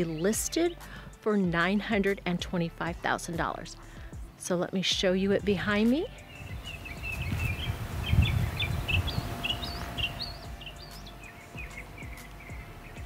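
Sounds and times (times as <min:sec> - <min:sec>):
birds chirping: 0:00.0 - 0:00.8, 0:05.3 - 0:13.0
wind rumbling on microphone: 0:05.4 - 0:13.0.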